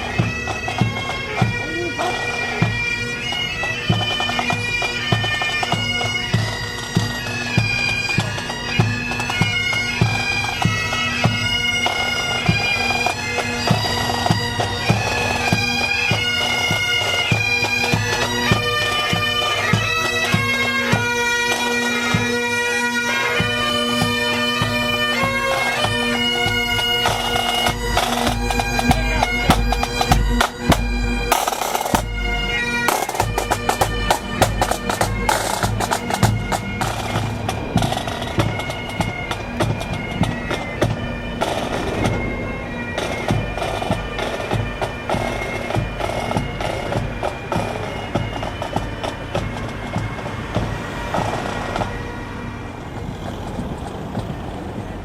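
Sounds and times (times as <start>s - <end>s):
bagpipes playing: 0.0s - 55.0s
drum beats: 26.4s - 51.9s
low rumble: 41.4s - 43.6s.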